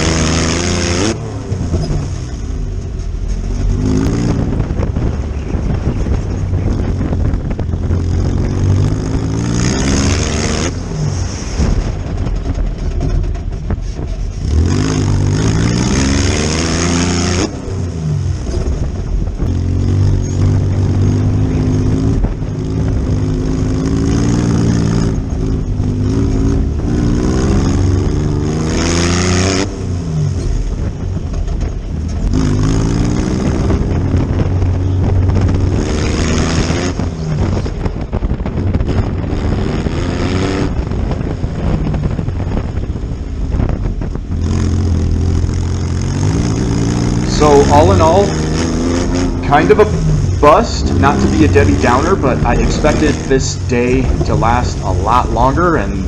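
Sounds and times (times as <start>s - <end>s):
buggy engine revving: 0.0s - 56.0s
bursts of rushing noise: 1.3s - 16.8s, 46.2s - 56.0s.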